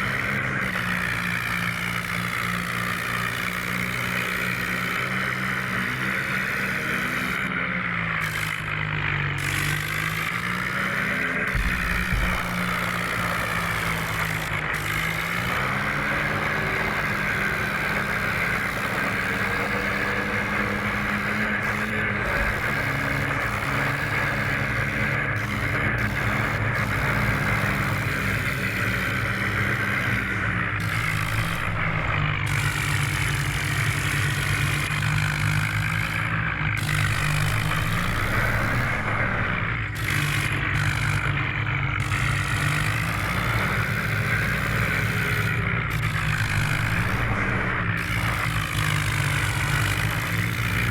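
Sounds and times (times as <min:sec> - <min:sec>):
vehicle engine running: 0:00.0 - 0:50.9.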